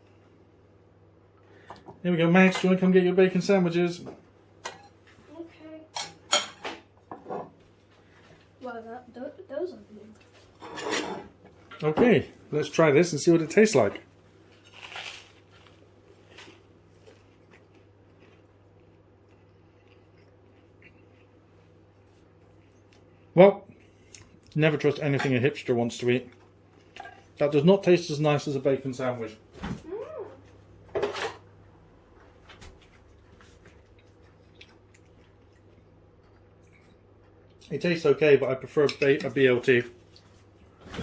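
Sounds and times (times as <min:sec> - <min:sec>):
faint low electrical hum: 0:00.0 - 0:41.0
person chewing food: 0:14.4 - 0:24.6, 0:32.8 - 0:37.7.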